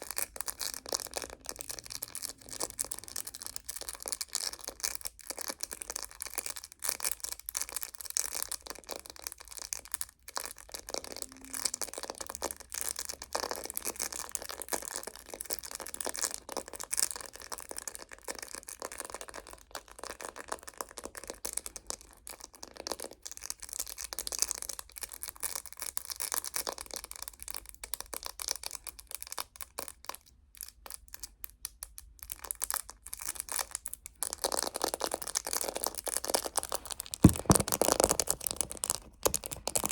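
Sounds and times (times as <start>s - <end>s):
fingernails tapping on phone case: 36.8s - 39.9s.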